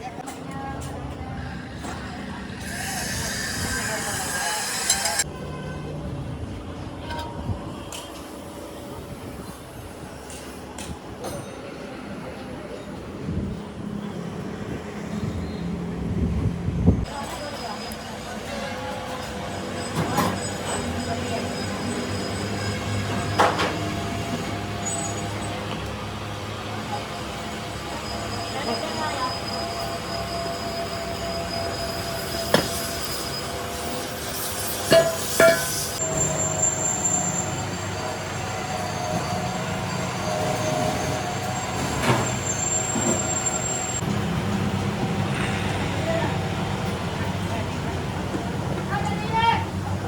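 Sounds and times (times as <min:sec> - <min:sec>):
squeal of metal on metal: 0:02.6 - 0:05.7, 0:17.2 - 0:24.0, 0:27.7 - 0:44.0.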